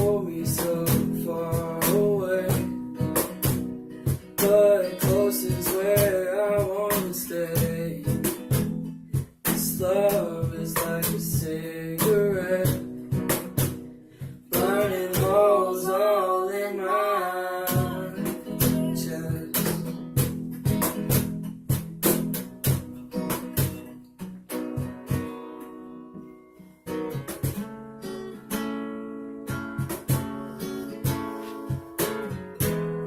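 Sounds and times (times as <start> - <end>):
person singing: 0.0 - 2.8, 4.4 - 8.3, 9.5 - 13.0, 14.4 - 20.0
strummed acoustic guitar: 0.0 - 33.0.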